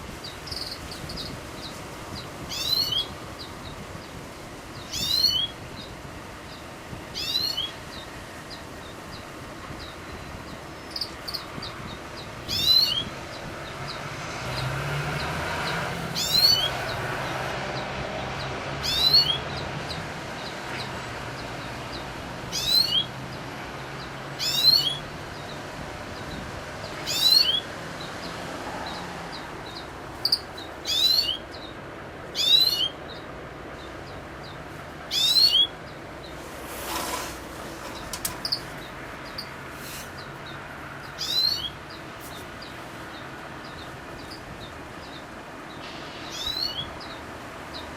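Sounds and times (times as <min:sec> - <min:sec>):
bird high call: 0:24.4 - 0:25.0, 0:32.4 - 0:33.0, 0:35.1 - 0:35.8, 0:46.2 - 0:47.0.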